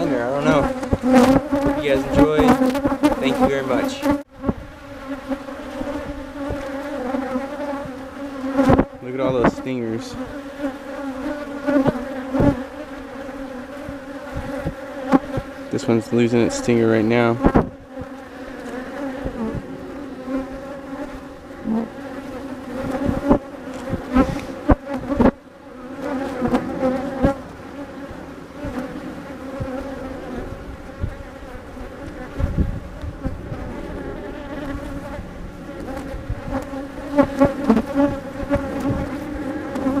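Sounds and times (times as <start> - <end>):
bees buzzing in flight: 0.0 - 40.0.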